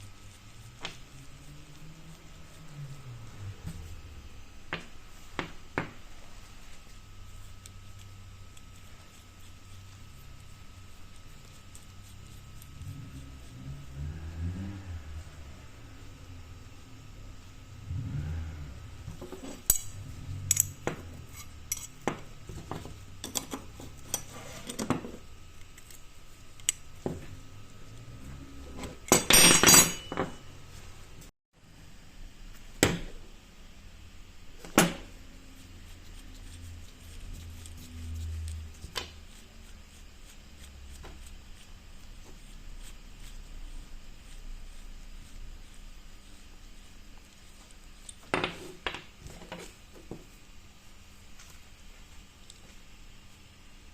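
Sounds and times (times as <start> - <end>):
metallic clinks of tools and parts: 29.1 - 30.4.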